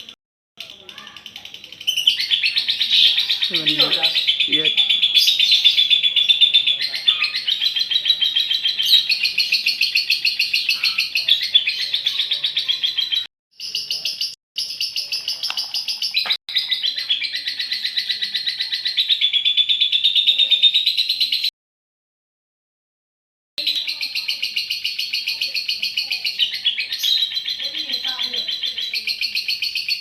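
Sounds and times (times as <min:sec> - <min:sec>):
lovebird chattering chirps: 0:00.7 - 0:21.4, 0:23.6 - 0:30.0.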